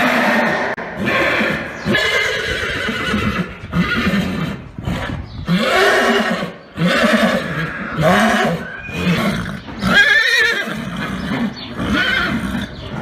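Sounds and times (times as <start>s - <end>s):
horses neighing: 0.0s - 13.0s.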